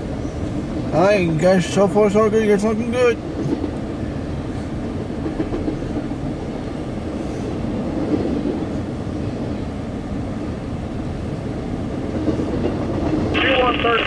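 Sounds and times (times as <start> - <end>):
train wheels on rails: 0.0 - 14.0.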